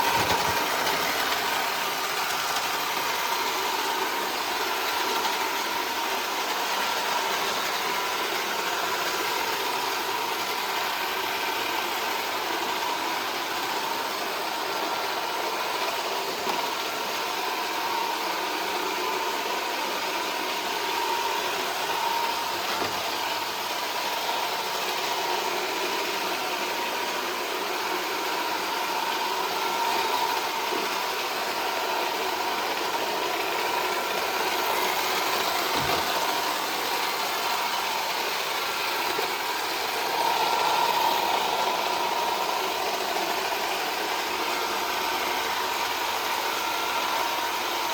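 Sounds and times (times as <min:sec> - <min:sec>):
robot vacuum motor whir: 0:00.0 - 0:47.9.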